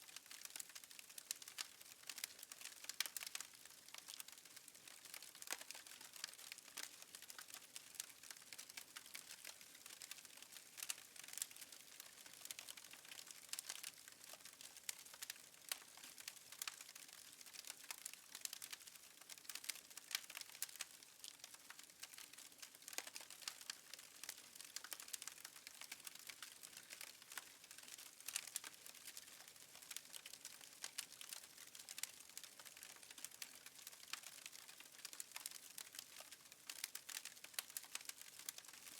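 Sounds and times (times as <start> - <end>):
fire crackling: 0.2 - 20.8, 21.4 - 30.3.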